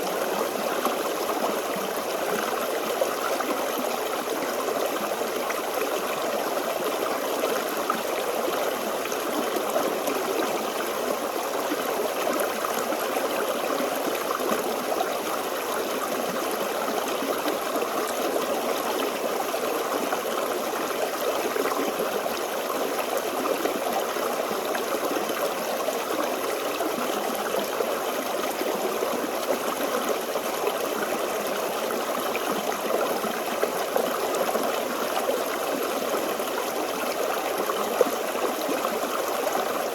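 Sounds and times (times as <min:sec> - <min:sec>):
stream babbling over stones: 0:00.1 - 0:39.9.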